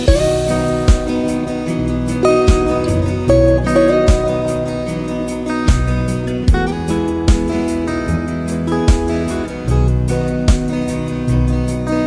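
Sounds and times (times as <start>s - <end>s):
gentle acoustic guitar music: 0.0s - 12.0s.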